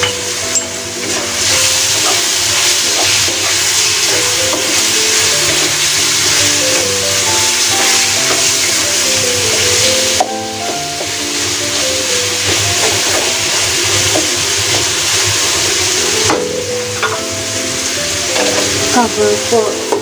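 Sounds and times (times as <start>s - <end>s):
background music with melody: 0.0s - 20.0s
food sizzling in hot oil: 0.0s - 20.0s
wooden spatula stirring in wok: 0.8s - 10.3s.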